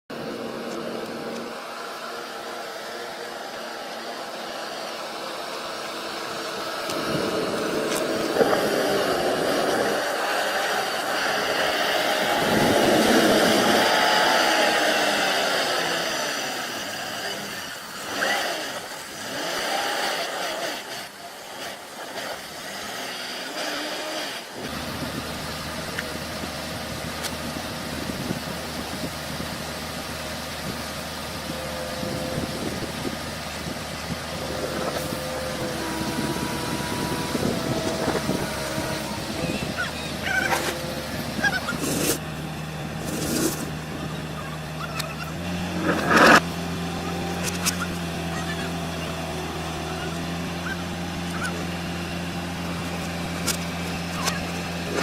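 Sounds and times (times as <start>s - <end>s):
diesel engine running: 0.0s - 55.0s
hiss: 6.6s - 26.2s.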